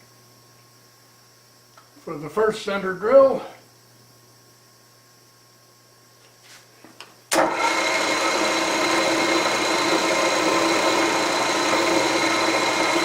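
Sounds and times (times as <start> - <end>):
milling machine spindle running: 7.4 - 13.0.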